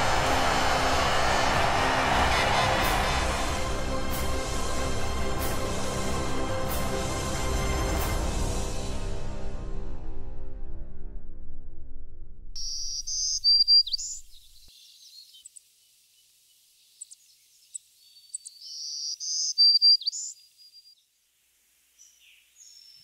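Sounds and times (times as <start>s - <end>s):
music: 0.0s - 12.6s
songbird chirping: 12.6s - 21.2s, 21.9s - 23.0s.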